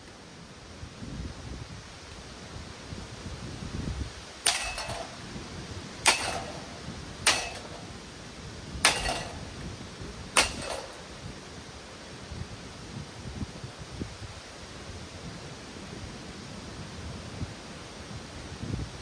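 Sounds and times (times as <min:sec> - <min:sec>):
heavy blows on metal fan body: 0:04.4 - 0:08.2, 0:08.8 - 0:11.4.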